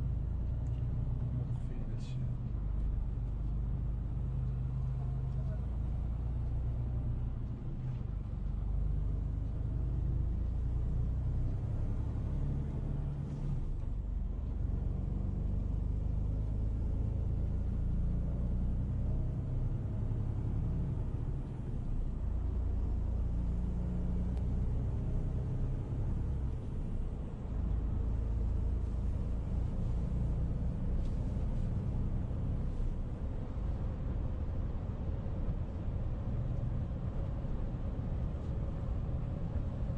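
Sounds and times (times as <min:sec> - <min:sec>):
vehicle low rumble: 0:00.0 - 0:39.9.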